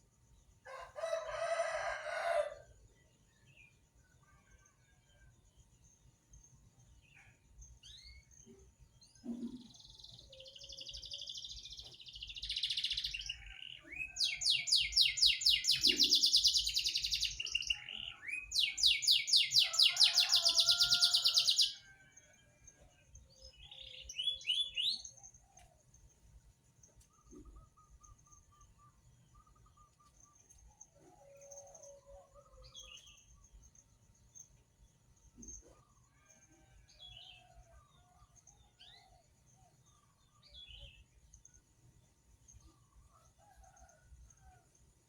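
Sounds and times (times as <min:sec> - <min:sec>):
songbird singing trills: 0:07.2 - 0:21.8, 0:23.3 - 0:26.1.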